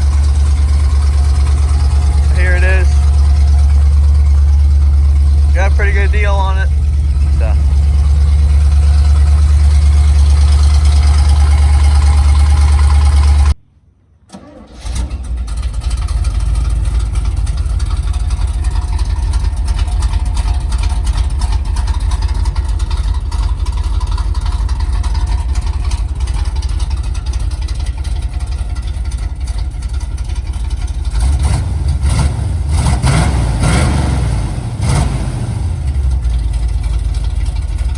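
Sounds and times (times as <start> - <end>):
engine revving: 0.0 - 13.6, 31.0 - 37.9
truck engine idling: 0.0 - 13.6, 15.2 - 37.9.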